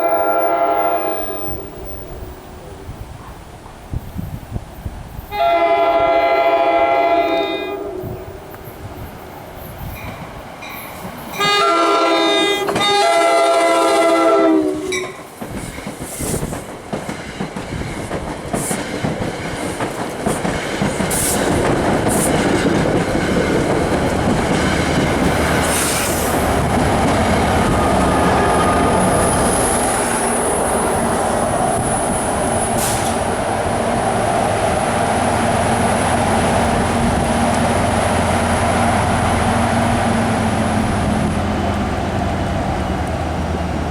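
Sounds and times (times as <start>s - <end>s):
train horn blasts: 0.0s - 2.3s, 5.3s - 8.4s, 11.4s - 15.2s
train wheels clattering: 15.0s - 30.6s.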